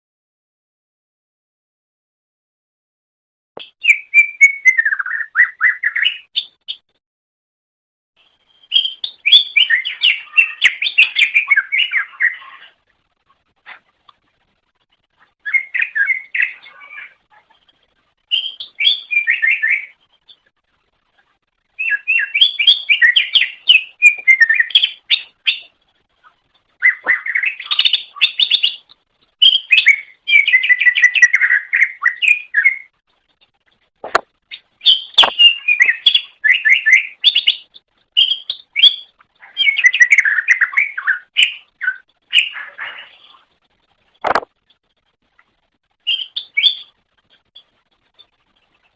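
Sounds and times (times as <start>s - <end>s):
bird singing chattering phrases: 26.8s - 32.7s, 34.5s - 43.4s.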